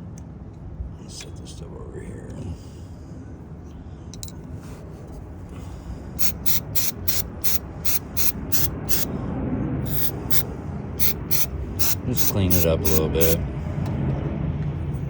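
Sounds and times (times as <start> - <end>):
aerosol spray squirts: 6.2 - 9.1, 9.9 - 10.4, 11.0 - 13.4.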